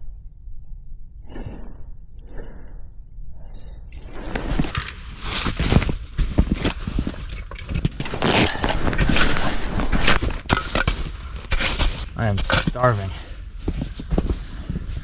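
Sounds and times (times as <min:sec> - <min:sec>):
footsteps crunching through snow: 0:04.0 - 0:05.8, 0:08.0 - 0:10.2.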